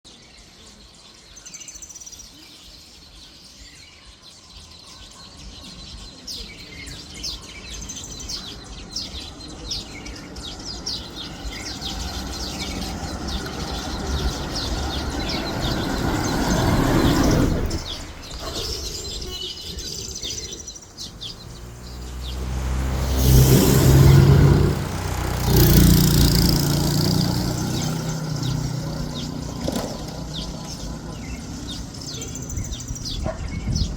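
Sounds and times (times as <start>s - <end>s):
birds chirping: 0.1s - 33.9s
passing vehicles: 6.9s - 33.9s.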